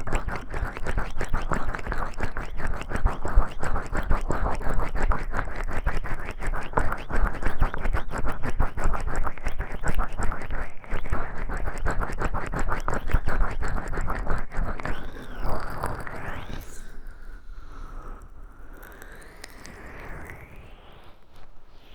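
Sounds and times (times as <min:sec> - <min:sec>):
hands rubbing microphone: 0:00.0 - 0:15.2.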